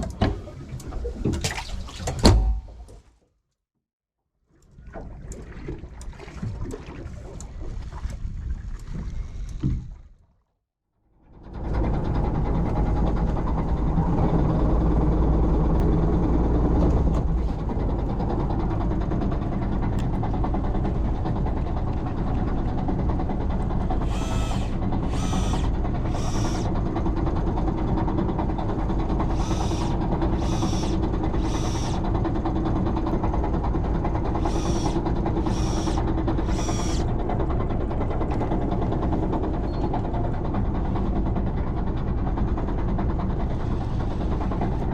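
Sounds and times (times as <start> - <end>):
water noise: 0.0 - 3.1, 4.5 - 10.4, 12.7 - 41.7
boat engine running: 11.2 - 44.9.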